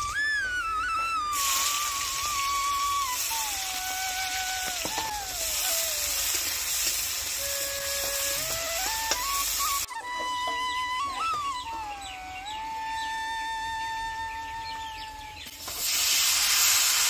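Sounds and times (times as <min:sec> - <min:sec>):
vegetables sizzling in hot oil: 0:01.3 - 0:09.9, 0:15.5 - 0:17.0.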